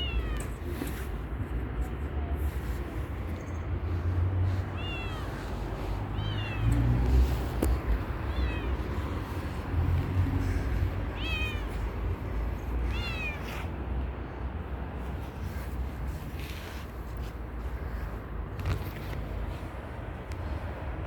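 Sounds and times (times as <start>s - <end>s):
cat meowing: 0.0s - 0.6s, 4.7s - 6.8s, 7.9s - 12.0s, 12.6s - 13.7s.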